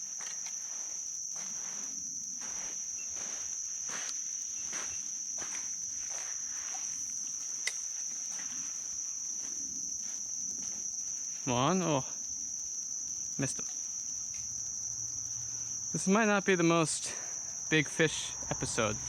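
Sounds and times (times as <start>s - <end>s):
soft rustling: 0.0s - 11.5s
insects chirring: 0.0s - 19.0s.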